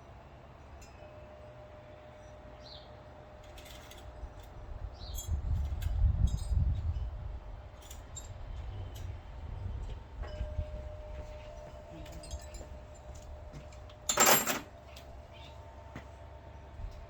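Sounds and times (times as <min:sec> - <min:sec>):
metallic clinks of tools: 0:11.5 - 0:14.7.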